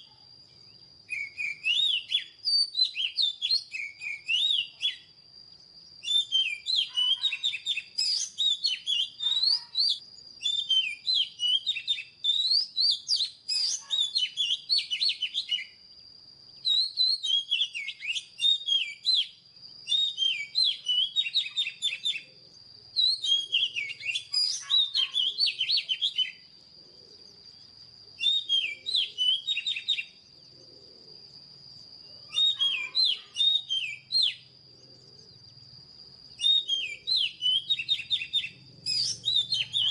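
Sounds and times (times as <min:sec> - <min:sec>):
magpie-robin singing: 0:01.1 - 0:05.1, 0:06.0 - 0:15.8, 0:16.6 - 0:22.3, 0:23.0 - 0:26.4, 0:28.2 - 0:30.2, 0:32.3 - 0:34.5, 0:36.4 - 0:39.9.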